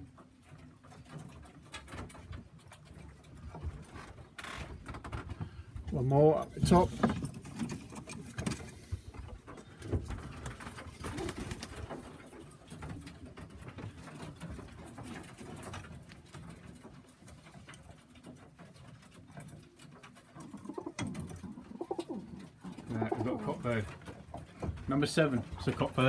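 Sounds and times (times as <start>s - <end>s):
pigeons cooing: 8.1s - 13.6s, 20.3s - 24.6s.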